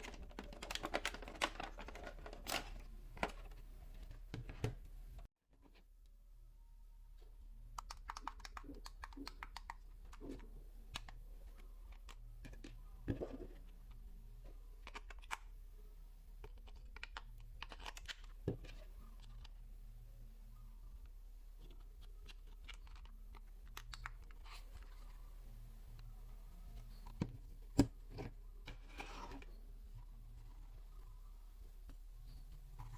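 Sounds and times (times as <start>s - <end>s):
plastic clicks and crinkles: 0.0s - 4.5s, 21.6s - 25.2s.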